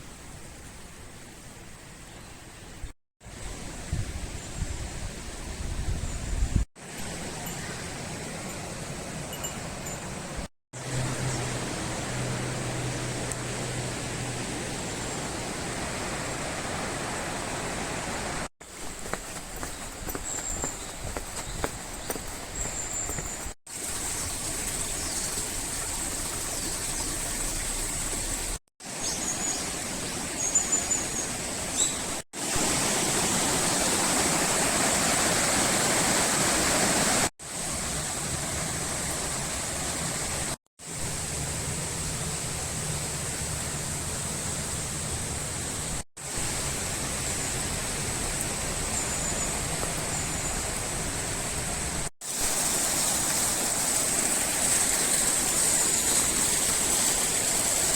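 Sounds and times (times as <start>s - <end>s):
river water rushing: 6.8s - 57.9s
birds chirping: 18.7s - 23.6s, 48.9s - 50.9s.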